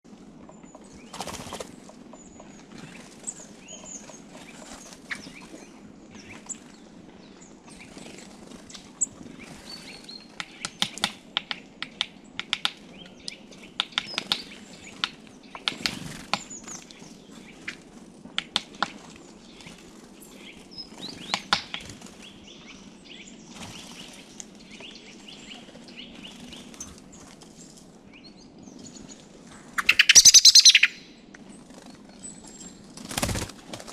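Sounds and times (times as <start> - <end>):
songbirds chirping: 0.1 - 33.9
sharp taps and clicks: 10.4 - 12.8.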